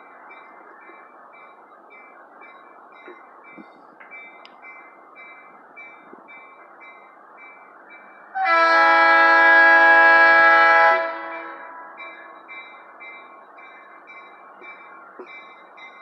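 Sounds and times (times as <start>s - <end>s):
crossing signal bell ringing: 0.0s - 8.4s, 11.2s - 16.0s
locomotive air horn blast: 8.4s - 11.8s.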